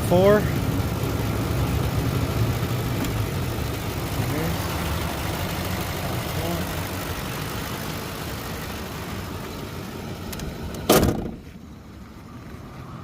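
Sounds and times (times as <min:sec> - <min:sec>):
truck engine idling: 0:00.0 - 0:13.0
loud slam: 0:10.9 - 0:11.4.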